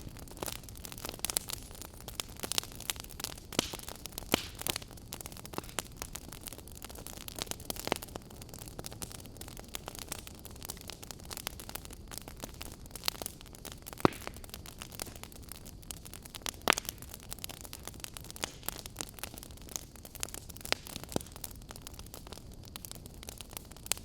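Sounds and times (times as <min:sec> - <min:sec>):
fire popping and snapping: 0:00.0 - 0:24.0
soft fire hiss: 0:00.0 - 0:24.0.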